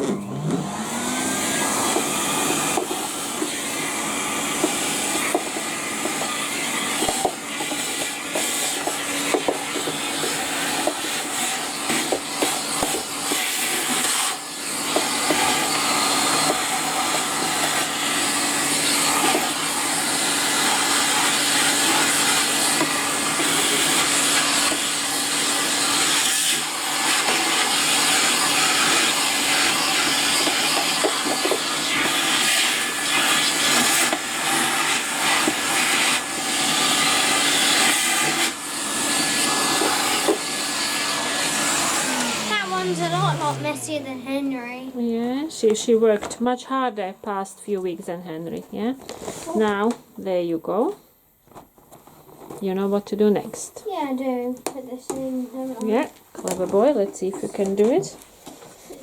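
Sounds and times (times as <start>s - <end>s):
vacuum cleaner running: 0.0s - 51.0s, 54.8s - 59.0s.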